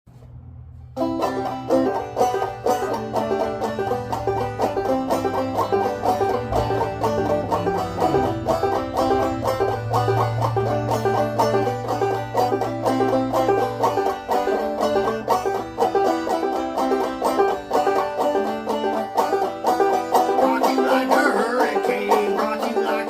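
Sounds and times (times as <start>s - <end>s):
low bass note: 0.1s - 15.6s
banjo picking: 0.1s - 23.0s.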